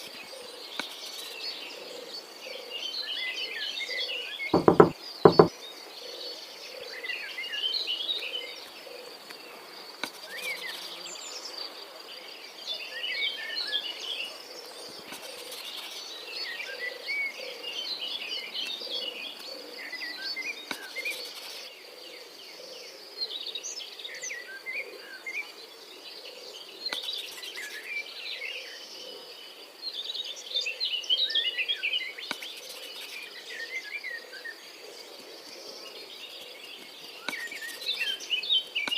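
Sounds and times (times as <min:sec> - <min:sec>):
birds chirping: 0:04.6 - 0:05.5.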